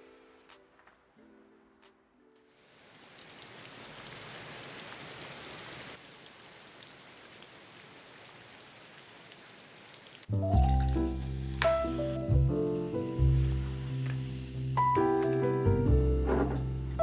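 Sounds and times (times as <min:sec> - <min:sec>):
falling water hissing: 0:09.8 - 0:17.0.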